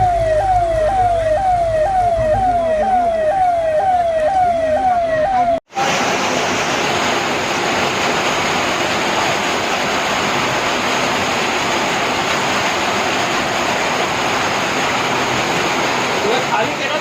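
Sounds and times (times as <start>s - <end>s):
heavy rain pouring: 5.7s - 17.0s.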